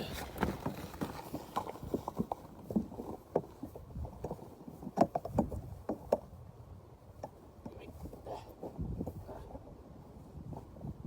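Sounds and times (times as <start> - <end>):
sheep feeding knocks and rustling: 0.0 - 6.3.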